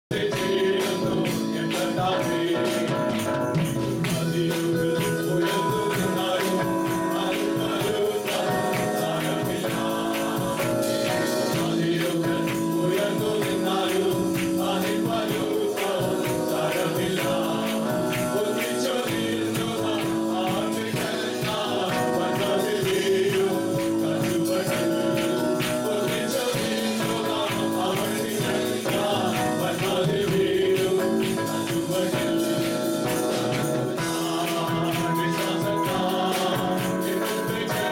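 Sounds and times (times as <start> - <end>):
group of voices singing: 0.0 - 37.9
band playing: 0.1 - 37.9
tambourine shaking: 0.1 - 37.9.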